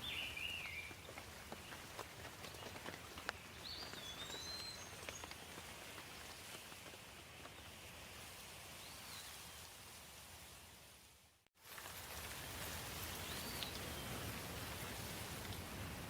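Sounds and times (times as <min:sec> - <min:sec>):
light rain falling: 0:00.0 - 0:16.0.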